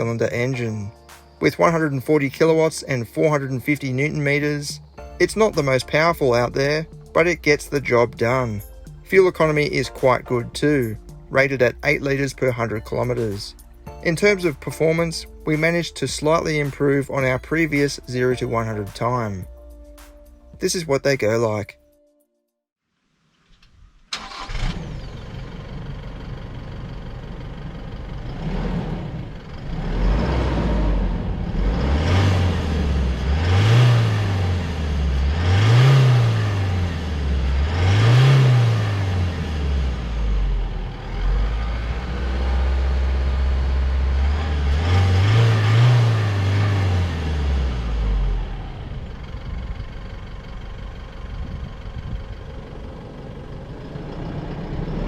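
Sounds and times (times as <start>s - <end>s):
diesel engine accelerating: 0.0s - 20.0s, 24.1s - 55.0s.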